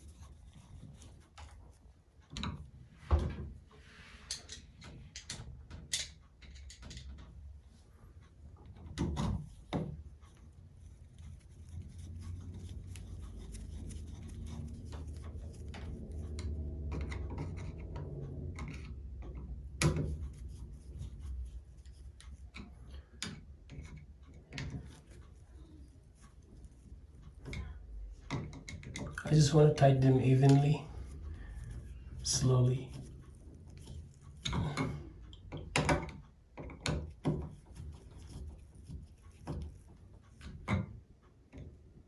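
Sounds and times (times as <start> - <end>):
low steady hum: 0.0 - 42.0
tools and metal parts clicking: 4.3 - 7.3.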